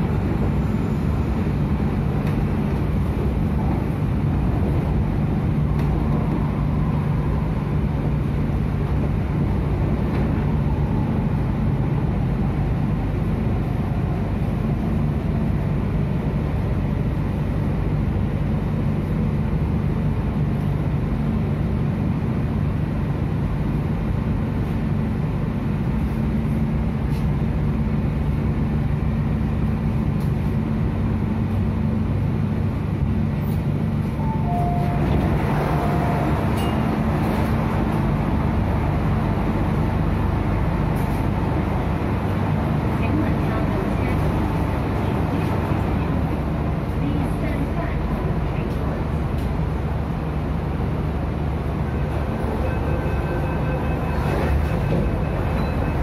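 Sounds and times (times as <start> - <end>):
train interior rumble and hum: 0.0 - 56.0
short beeps: 34.2 - 36.8.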